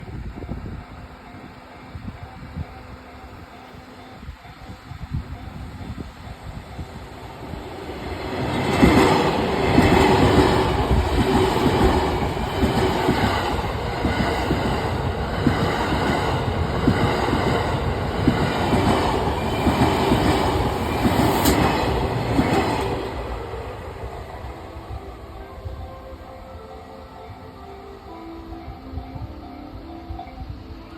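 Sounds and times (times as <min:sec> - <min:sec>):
train wheels clattering over rail joints: 0:08.5 - 0:23.2.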